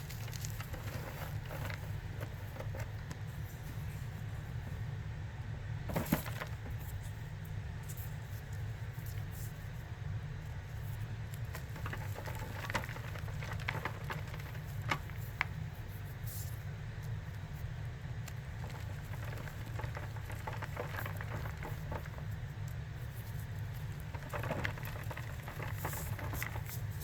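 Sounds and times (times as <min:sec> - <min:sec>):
steady low hum: 0:00.0 - 0:27.0
cornstarch crunching: 0:23.5 - 0:27.0.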